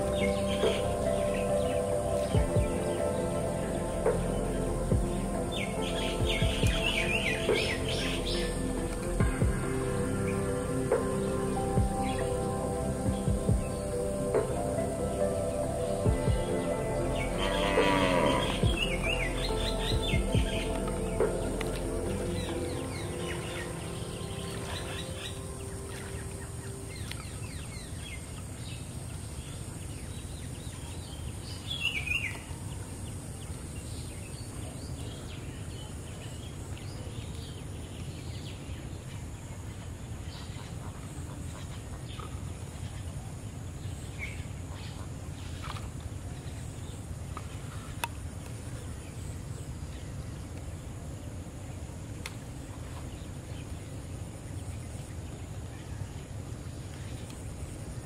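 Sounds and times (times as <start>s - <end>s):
steady low rumble: 0.0s - 28.4s
bird chirps: 0.0s - 32.6s.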